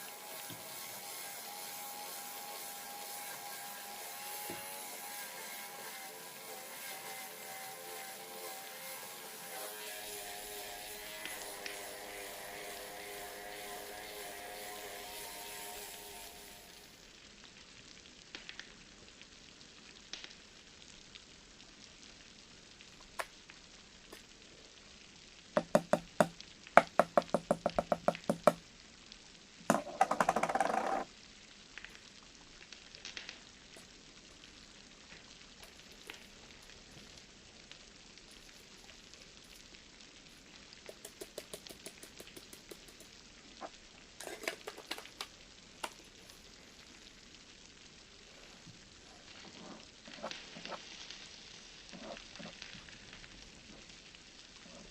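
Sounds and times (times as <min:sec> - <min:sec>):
faint scattered clicks: 0:40.8 - 0:43.2.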